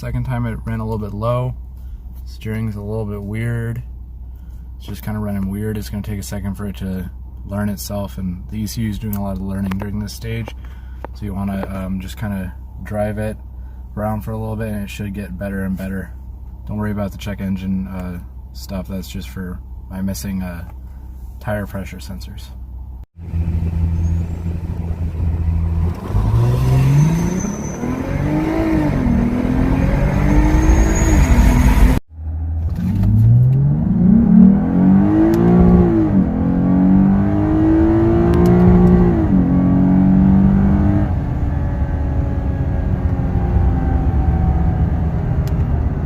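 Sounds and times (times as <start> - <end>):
car engine accelerating hard: 23.2 - 46.0.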